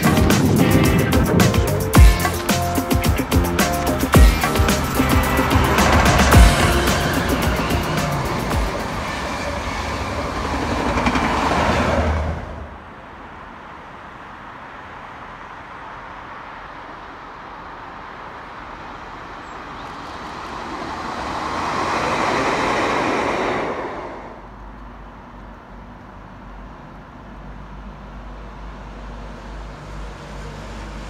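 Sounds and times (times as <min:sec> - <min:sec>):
steady rumble: 0:00.0 - 0:11.1
diesel train passing: 0:00.0 - 0:31.0
train coaches passing at speed: 0:00.0 - 0:31.0.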